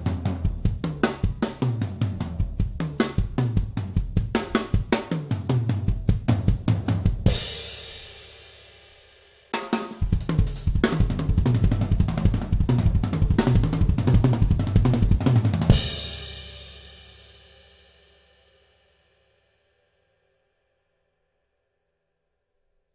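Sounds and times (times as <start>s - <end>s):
drum kit groove: 0.0s - 8.7s, 9.5s - 17.2s.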